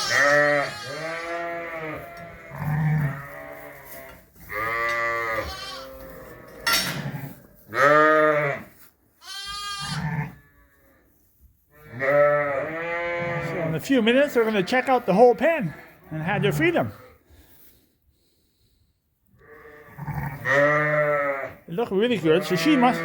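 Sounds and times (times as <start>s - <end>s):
sheep bleating: 0.0s - 6.5s, 7.7s - 10.8s, 11.7s - 17.1s, 19.4s - 23.0s.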